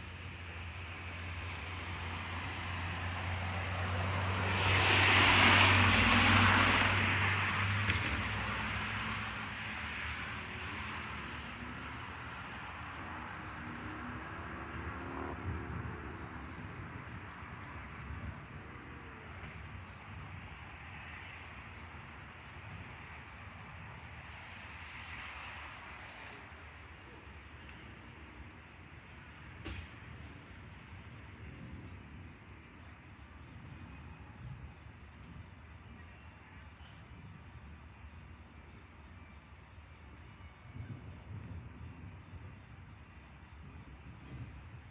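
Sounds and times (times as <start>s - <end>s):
crickets chirring: 0.0s - 44.9s
passing vehicle: 1.0s - 21.4s.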